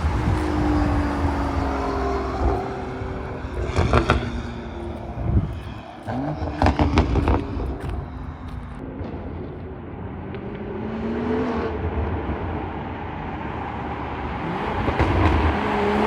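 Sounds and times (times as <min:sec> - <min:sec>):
exhaust cracks: 0:00.0 - 0:10.7, 0:14.6 - 0:16.0
car engine revving: 0:00.0 - 0:16.0.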